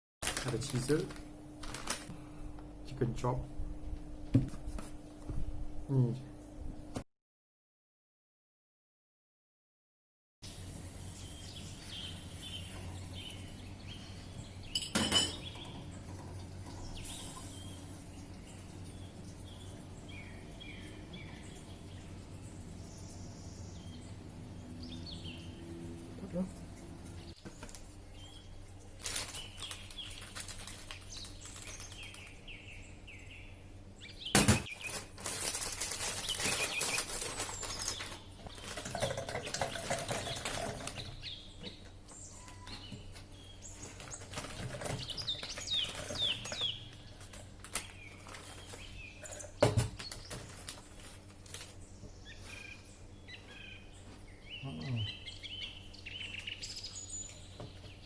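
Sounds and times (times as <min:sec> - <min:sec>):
small birds chirping: 0:10.9 - 0:35.1, 0:36.0 - 0:38.8, 0:39.4 - 0:58.0.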